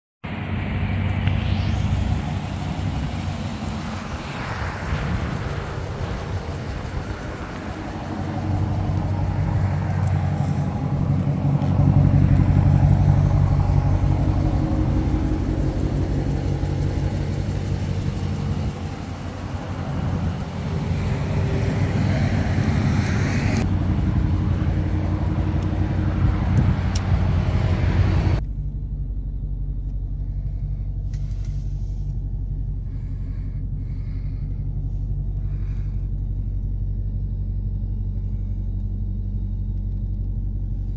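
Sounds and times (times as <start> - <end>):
car engine idling: 0.3 - 40.9.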